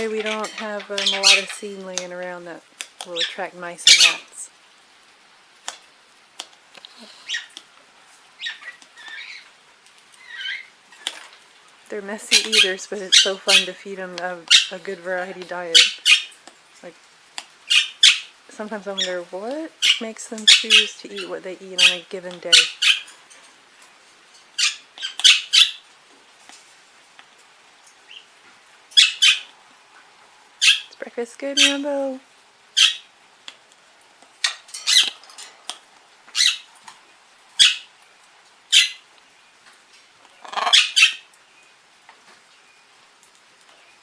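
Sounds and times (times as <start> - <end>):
birds chirping and squawking: 0.0 - 4.5, 6.9 - 7.6, 8.3 - 11.4, 12.0 - 16.4, 17.6 - 23.6, 24.4 - 26.0, 28.0 - 29.6, 30.6 - 33.2, 34.4 - 38.0, 38.6 - 39.1, 40.2 - 41.8
parrot squawks: 7.1 - 7.6, 8.4 - 9.5, 10.2 - 11.1, 14.5 - 14.8, 15.7 - 16.4, 17.6 - 18.4, 19.8 - 23.2, 24.6 - 25.9, 28.9 - 29.5, 30.6 - 30.9, 32.7 - 33.1, 34.4 - 35.2, 36.3 - 36.7, 37.6 - 37.9, 38.7 - 39.1, 40.4 - 41.3.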